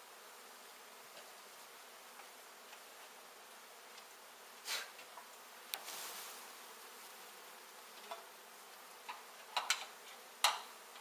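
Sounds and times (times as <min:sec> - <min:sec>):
bees buzzing: 0:00.0 - 0:04.6, 0:05.2 - 0:11.0
hive scrapes and clicks: 0:04.8 - 0:10.3.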